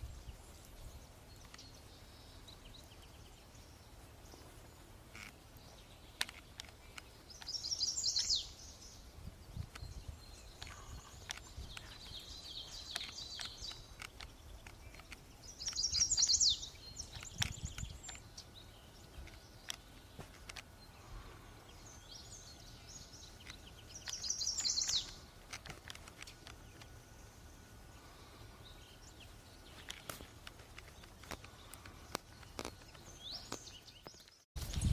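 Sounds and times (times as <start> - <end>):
songbird trilling: 6.9 - 9.0, 9.7 - 19.8, 21.8 - 25.3.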